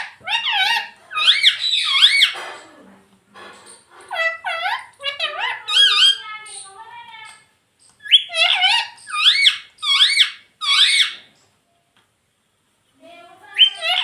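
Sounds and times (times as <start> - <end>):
parrot chirping: 0.0 - 2.4, 3.5 - 11.5, 13.4 - 14.0
parrot whistled calls: 0.2 - 2.4, 8.0 - 11.3.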